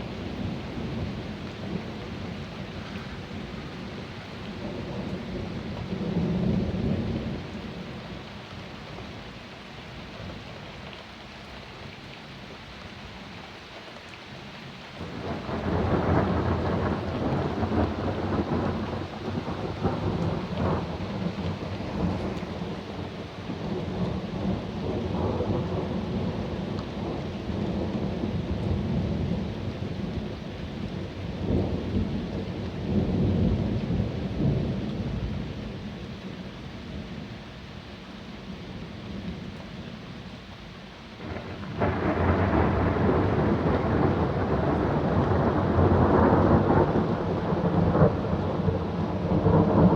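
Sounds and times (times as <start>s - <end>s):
steady rain: 0.0s - 49.9s
thunder rumbling: 15.1s - 30.4s, 41.2s - 49.9s.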